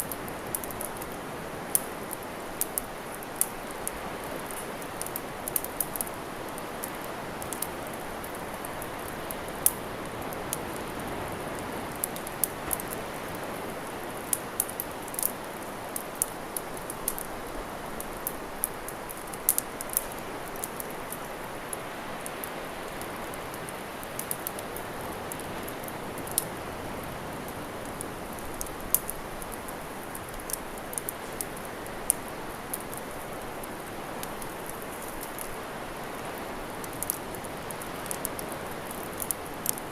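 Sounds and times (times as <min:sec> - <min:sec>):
fire popping: 0:00.0 - 0:39.9
wood fire crackling: 0:00.0 - 0:39.9.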